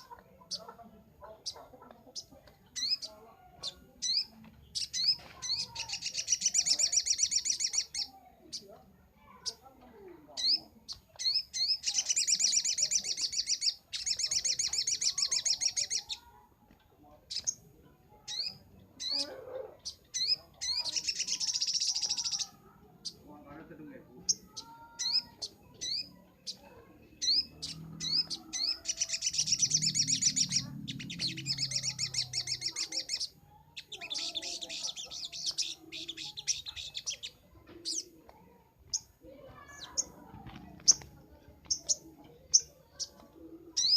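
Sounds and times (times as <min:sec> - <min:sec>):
bird trilling: 0:01.3 - 0:08.6, 0:10.4 - 0:16.3, 0:18.2 - 0:23.3, 0:24.2 - 0:38.1, 0:38.9 - 0:40.2.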